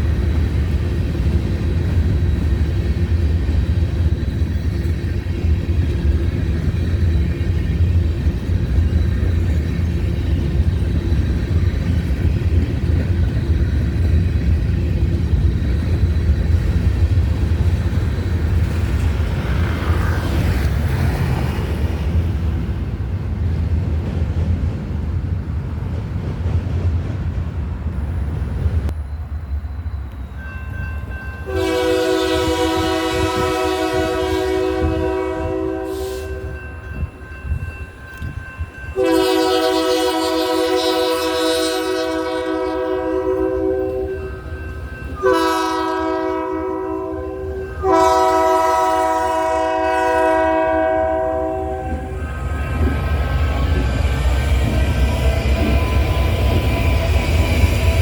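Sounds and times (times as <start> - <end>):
diesel train rumbling past: 0.0 - 58.0
locomotive air horn chord: 31.5 - 36.6, 39.0 - 44.2, 45.2 - 52.2.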